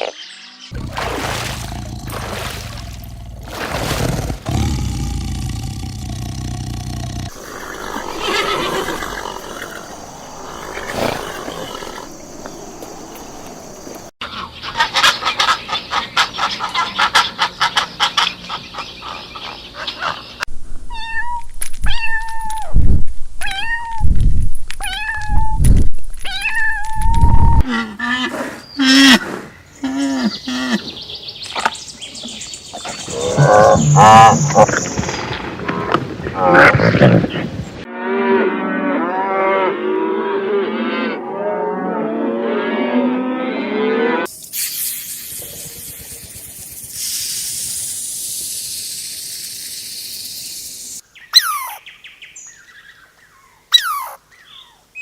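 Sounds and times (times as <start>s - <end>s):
rapid animal chatter: 4.5s - 14.0s
low-pitched animal calls: 4.5s - 14.1s, 33.1s - 35.0s.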